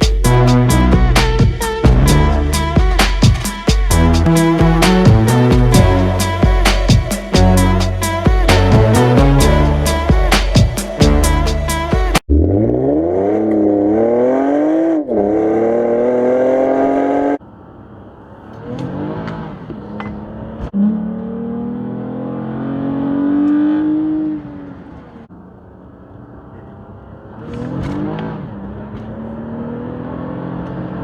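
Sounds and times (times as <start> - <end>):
car engine accelerating hard: 11.0 - 31.0.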